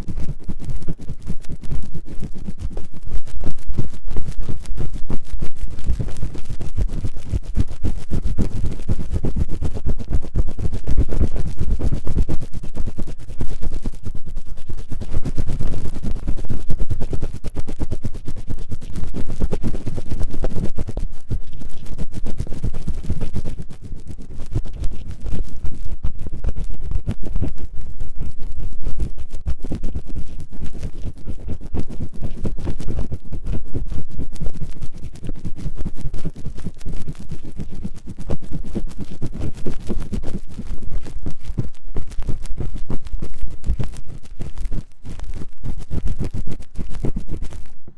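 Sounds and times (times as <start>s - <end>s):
ear-cleaning tool scratching: 0.0s - 47.8s.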